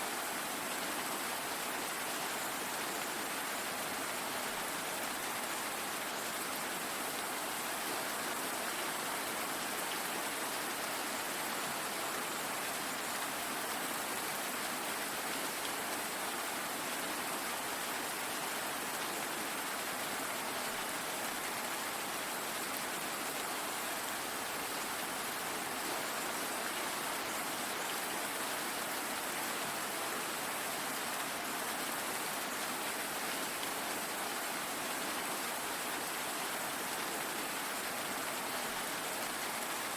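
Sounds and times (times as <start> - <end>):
steady rainfall hiss: 0.0 - 39.9.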